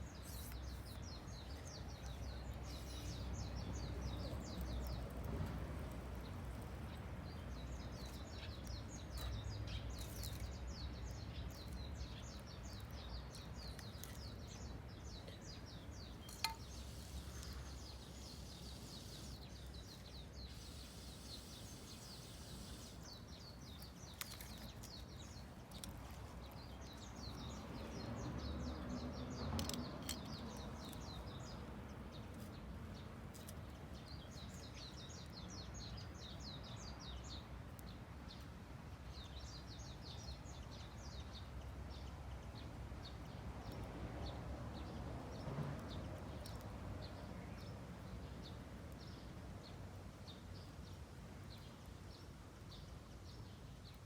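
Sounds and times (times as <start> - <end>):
birds chirping: 0.0 - 38.4.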